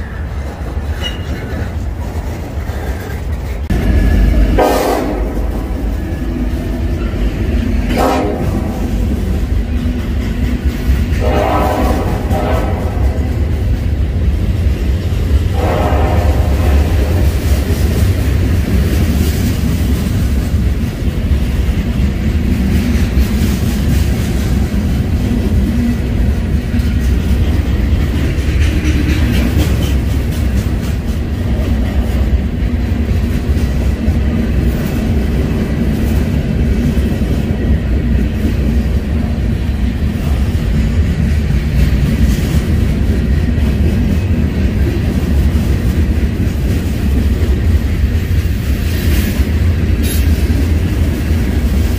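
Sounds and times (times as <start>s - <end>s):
wheels clicking over rail joints: 0.0s - 4.6s, 17.0s - 51.9s
freight train rumbling on rails: 0.0s - 51.9s.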